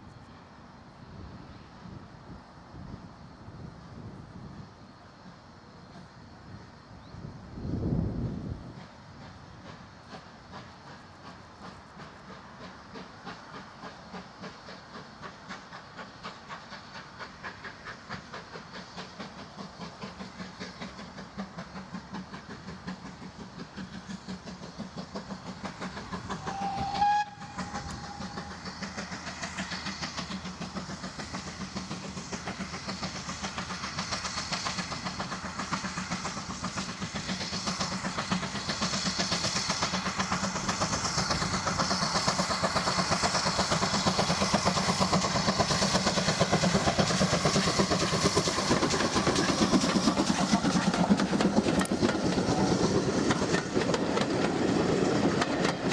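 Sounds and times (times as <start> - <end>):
steam locomotive exhaust beats: 0.0 - 55.9
steam whistle blast: 26.4 - 28.6.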